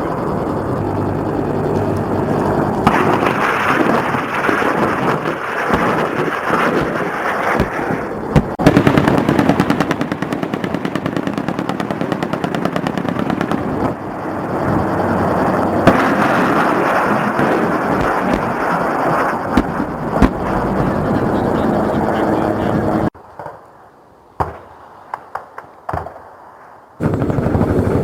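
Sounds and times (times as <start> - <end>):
machine-gun burst: 2.8 - 13.9.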